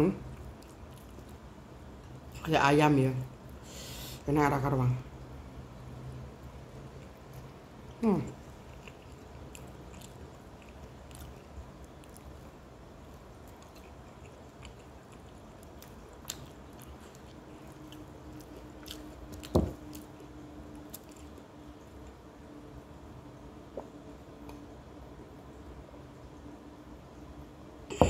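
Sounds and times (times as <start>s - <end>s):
person chewing food: 0.3s - 2.2s, 6.7s - 22.2s.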